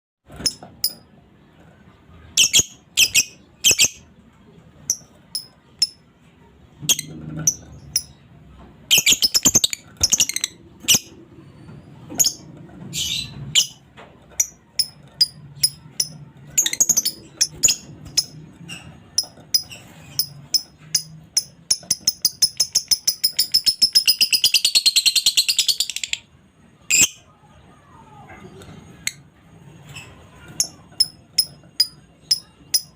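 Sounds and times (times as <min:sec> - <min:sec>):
lovebird chirping and chattering: 0:02.3 - 0:04.1, 0:04.8 - 0:06.0, 0:06.9 - 0:08.2, 0:08.9 - 0:11.2, 0:12.1 - 0:13.8, 0:14.4 - 0:26.2, 0:30.6 - 0:32.9.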